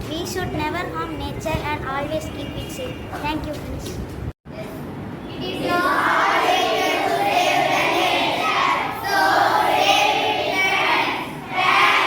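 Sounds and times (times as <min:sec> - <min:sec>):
children calling out together: 0:05.3 - 0:12.0.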